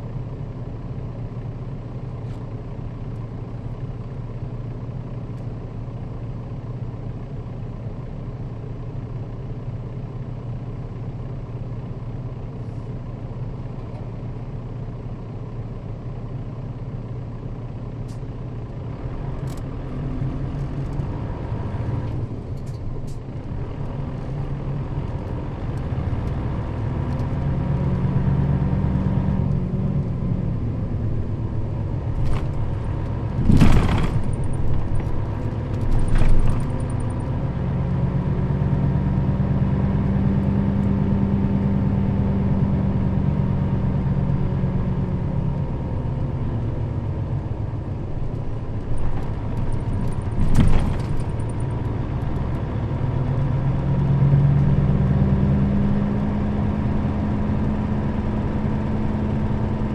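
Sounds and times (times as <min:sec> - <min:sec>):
bus diesel engine running: 0:00.0 - 0:59.9
sharp clicks and rattles: 0:32.0 - 0:37.3, 0:48.2 - 0:52.6.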